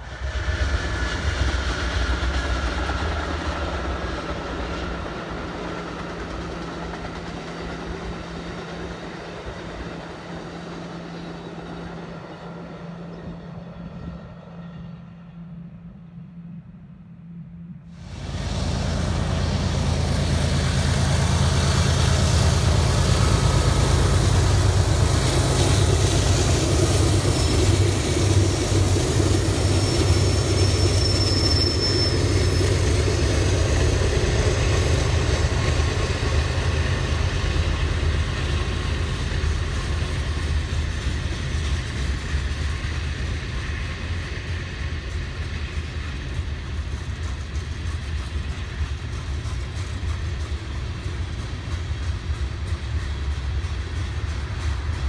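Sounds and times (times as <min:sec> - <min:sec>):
diesel locomotive engine drone: 0:00.0 - 0:55.0
freight cars rolling by: 0:17.9 - 0:55.0
high squeal: 0:23.2 - 0:33.4.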